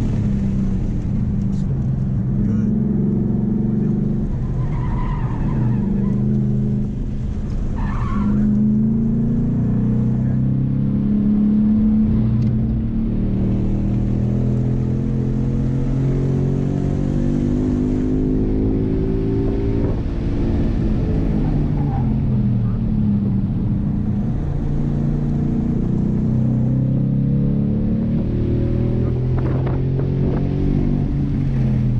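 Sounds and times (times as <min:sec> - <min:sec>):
car engine revving: 0:00.0 - 0:31.9
tire squeal: 0:04.3 - 0:06.5, 0:07.5 - 0:08.8, 0:21.2 - 0:22.8.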